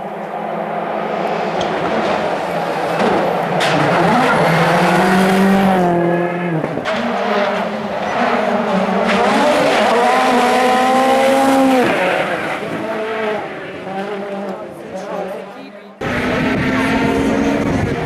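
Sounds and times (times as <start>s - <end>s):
rally car engine at high revs: 1.3s - 18.0s.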